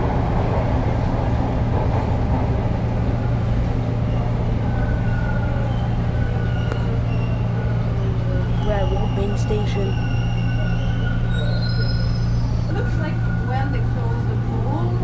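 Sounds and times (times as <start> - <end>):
subway train hum and rumble: 0.0 - 15.0
faint high squeals: 4.2 - 13.5.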